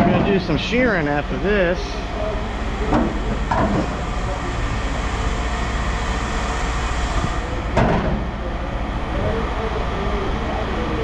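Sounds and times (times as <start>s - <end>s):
low mechanical rumble: 0.0s - 11.0s.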